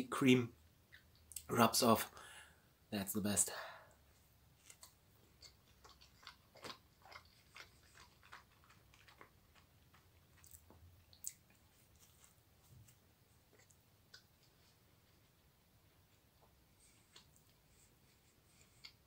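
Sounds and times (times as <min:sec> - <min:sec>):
wet chewing mouth clicks: 0:04.6 - 0:12.2.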